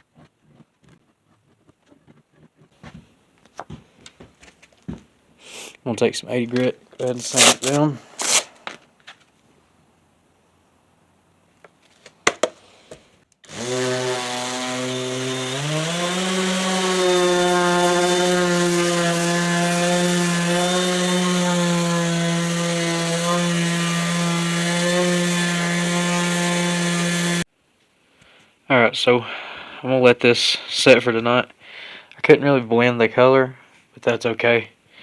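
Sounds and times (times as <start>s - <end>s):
electric sander sanding wood: 13.5s - 27.5s.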